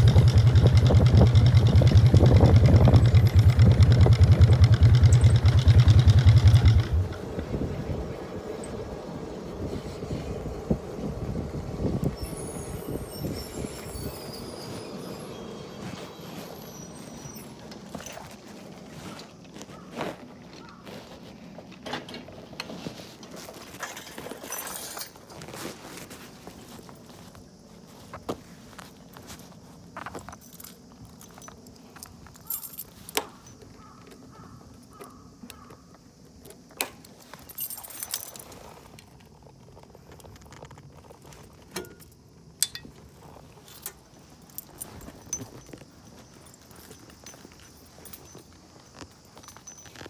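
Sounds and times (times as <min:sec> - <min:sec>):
rattling clatter of primary: 0:00.0 - 0:08.9
motorcycle engine running at low revs: 0:00.0 - 0:12.3.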